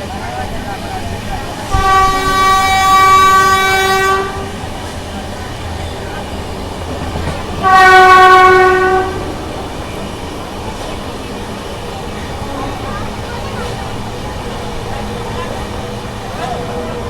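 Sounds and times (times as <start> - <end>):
train running noise: 0.0 - 17.0
locomotive horn blasts: 1.7 - 4.7, 7.6 - 9.4.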